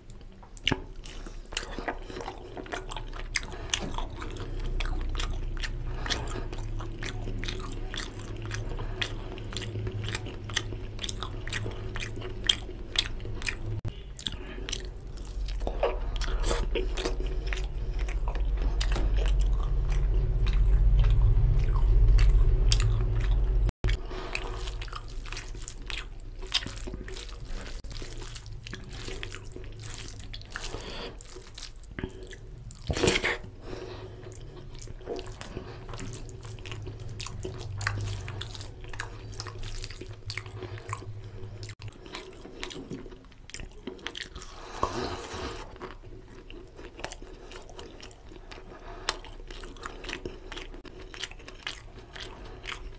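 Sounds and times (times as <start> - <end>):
chewing with wet mouth clicks: 0.0 - 52.9
loud low rumble: 14.9 - 25.1.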